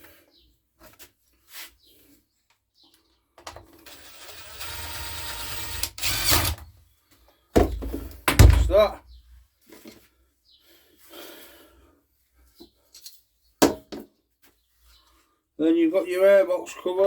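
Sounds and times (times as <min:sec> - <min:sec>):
small power tool motor: 0:03.8 - 0:06.6.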